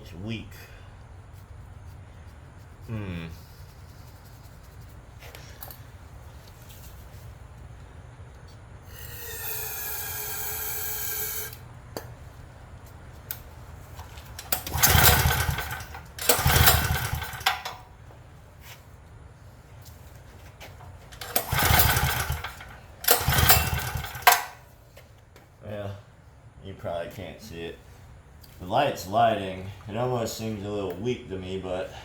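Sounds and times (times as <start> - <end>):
recoil pull-starter cranking engine: 8.9 - 11.6, 14.4 - 17.8, 21.1 - 24.6.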